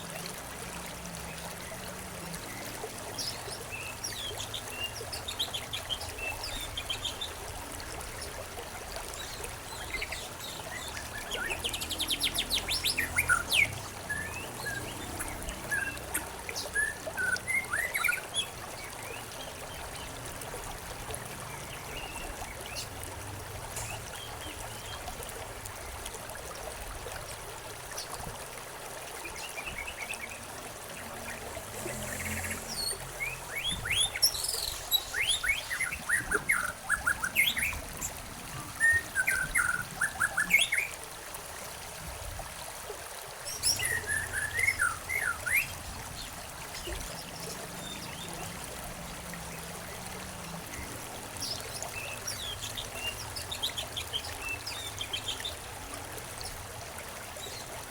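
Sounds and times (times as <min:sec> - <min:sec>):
trickle of running water: 0:00.0 - 0:57.9
small birds chirping: 0:31.1 - 0:38.1.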